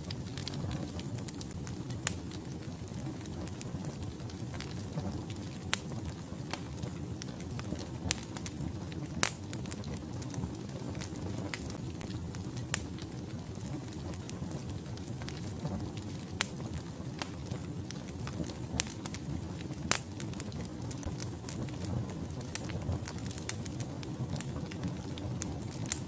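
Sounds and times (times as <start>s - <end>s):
fire crackles and pops: 0.0s - 26.0s
wood fire burning: 0.0s - 26.0s.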